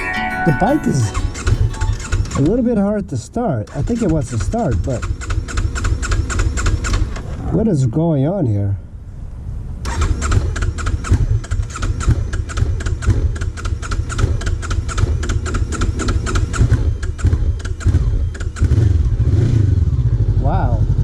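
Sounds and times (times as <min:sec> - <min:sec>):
motorcycle engine sputtering: 0:03.7 - 0:07.4, 0:09.9 - 0:21.0.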